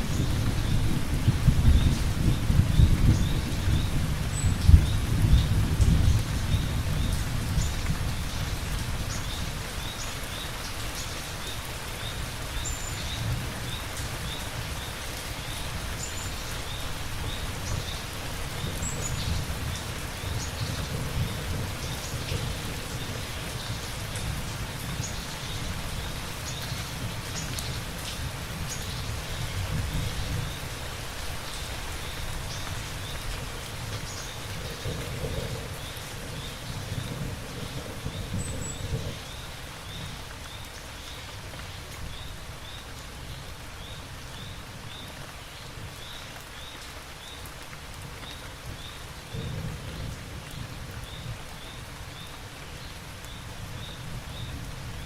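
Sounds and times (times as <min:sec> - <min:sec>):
heavy rain: 0:00.0 - 0:55.0
rolling thunder: 0:32.7 - 0:40.2.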